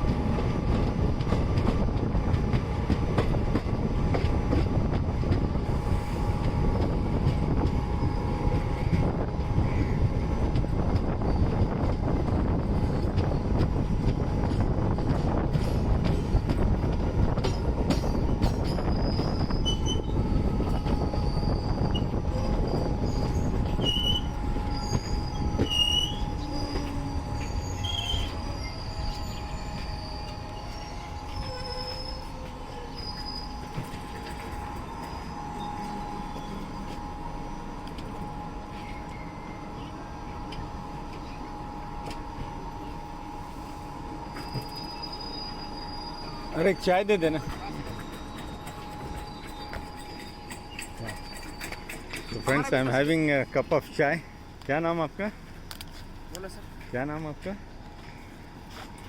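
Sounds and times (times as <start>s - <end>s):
train wheels rumbling: 0.0s - 59.0s
short high squeaks: 18.6s - 20.2s, 21.3s - 36.7s, 44.3s - 46.7s, 47.3s - 52.8s.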